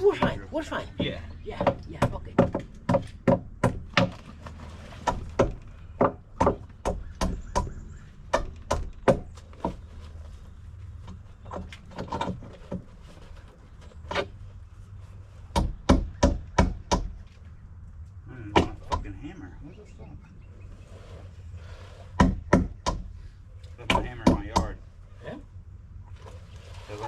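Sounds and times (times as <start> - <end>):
knocks on wooden deck boards: 1.0 - 4.2, 5.0 - 9.8, 15.5 - 17.2, 22.2 - 23.1, 23.8 - 24.8.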